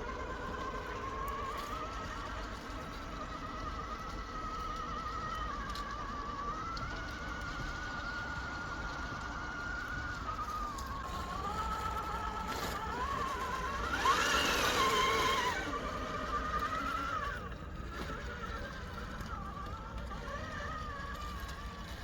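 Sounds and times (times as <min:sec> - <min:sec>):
rc car electric motor whining: 0:00.0 - 0:22.0.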